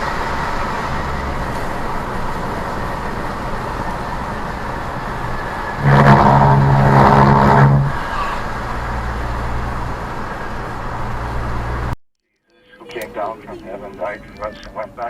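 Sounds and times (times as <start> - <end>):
road and engine noise: 0.0 - 15.0
vehicle horn: 5.8 - 8.1.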